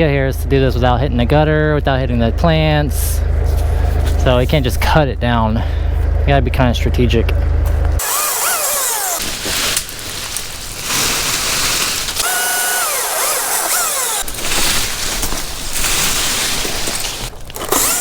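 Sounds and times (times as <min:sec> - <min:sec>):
chainsaw cutting branches: 0:08.0 - 0:18.0
chainsaw revving: 0:08.0 - 0:18.0.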